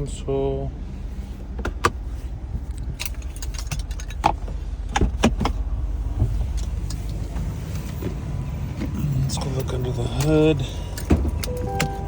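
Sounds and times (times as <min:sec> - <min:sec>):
console lid and latches clicking: 0:11.0 - 0:12.0.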